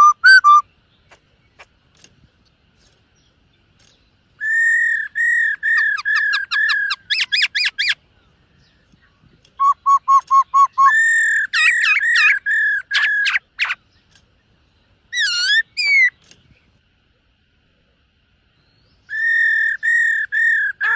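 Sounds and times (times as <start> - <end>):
bird singing whistled phrases: 0.0 - 0.7, 4.4 - 8.0, 9.6 - 13.8, 15.1 - 16.2, 18.7 - 20.9.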